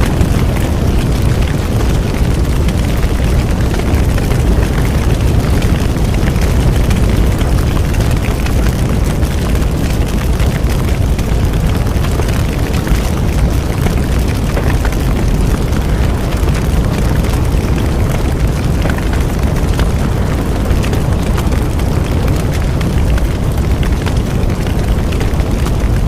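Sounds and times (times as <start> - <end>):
low roar of flames: 0.0 - 26.0
wood crackling and popping: 0.0 - 26.0.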